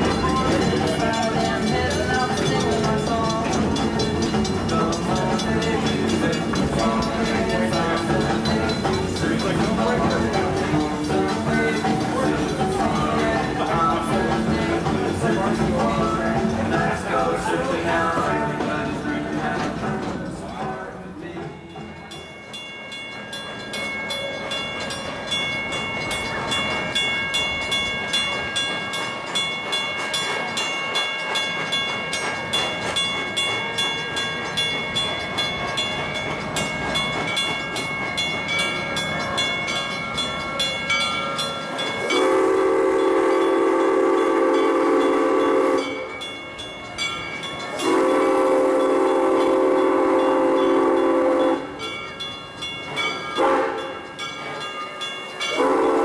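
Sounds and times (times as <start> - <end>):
steam locomotive running: 0.0 - 56.0
steam whistle blasts: 42.0 - 46.2, 47.8 - 51.8, 53.4 - 54.0, 55.5 - 56.0.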